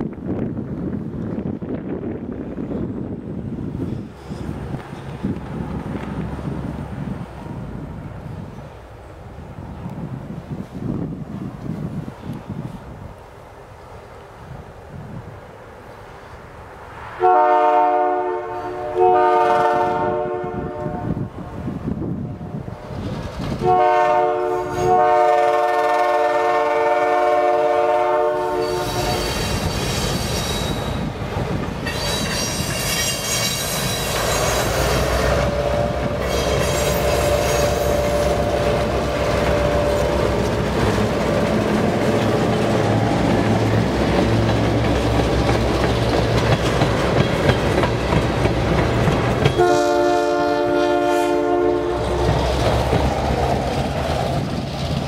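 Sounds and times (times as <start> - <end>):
locomotive engine rumbling: 0.0 - 55.0
locomotive horn chord: 17.2 - 21.3, 23.6 - 29.2, 35.2 - 40.6, 49.6 - 52.3.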